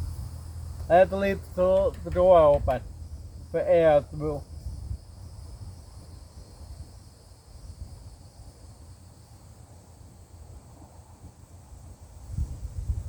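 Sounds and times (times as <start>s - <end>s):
wind rumble on microphone: 0.0s - 8.6s, 10.7s - 13.0s
high-pitched insect chirring: 0.0s - 9.4s.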